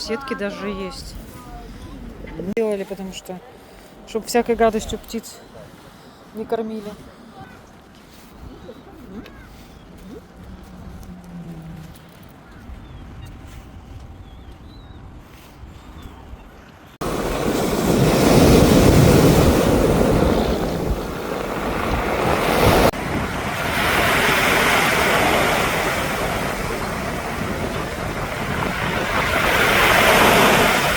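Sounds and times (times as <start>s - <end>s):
wind rumbling on microphone: 7.4s - 30.9s
sea waves washing on shore: 17.0s - 30.9s.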